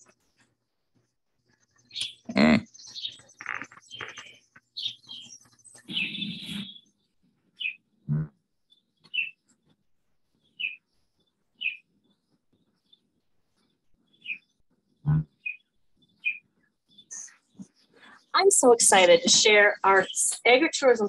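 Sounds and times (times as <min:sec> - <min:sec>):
birds chirping: 0:01.5 - 0:09.7, 0:10.4 - 0:21.0
low bird call: 0:01.9 - 0:06.8
bird short high chirp: 0:05.9 - 0:06.8, 0:11.6 - 0:11.8.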